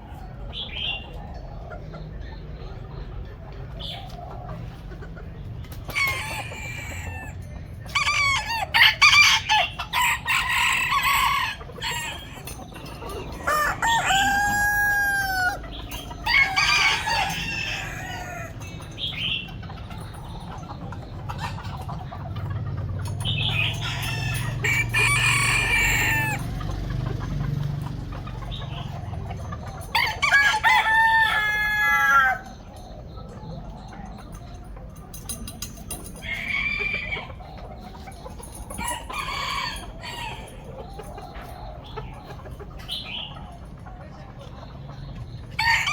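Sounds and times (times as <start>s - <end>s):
chickens clucking: 0.0s - 45.9s
rooster crowing: 5.9s - 18.6s, 23.5s - 26.6s, 29.9s - 32.6s, 36.2s - 37.4s, 38.8s - 40.7s, 45.5s - 45.9s.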